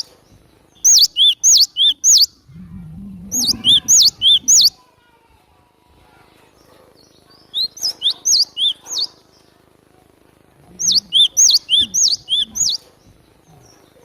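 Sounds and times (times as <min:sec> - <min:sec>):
bird singing whistled notes: 0:00.8 - 0:02.5, 0:03.1 - 0:04.8, 0:10.8 - 0:12.8.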